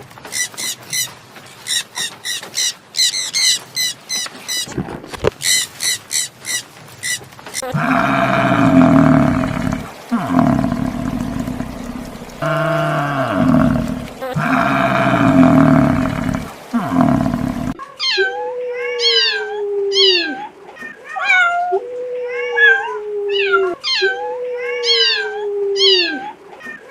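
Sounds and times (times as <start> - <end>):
big cat roaring: 7.6 - 17.8
cat meowing: 18.0 - 26.9.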